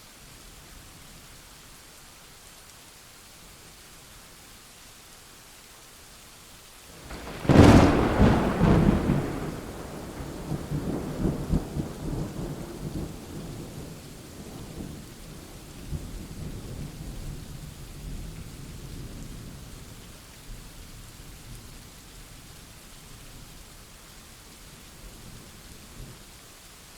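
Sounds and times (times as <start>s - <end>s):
steady rain: 0.0s - 26.9s
thunder crack and rumble: 7.0s - 15.0s.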